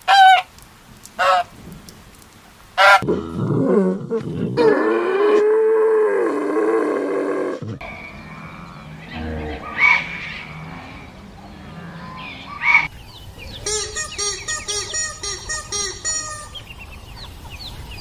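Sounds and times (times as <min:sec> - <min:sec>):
fowl calling: 0:13.5 - 0:16.7.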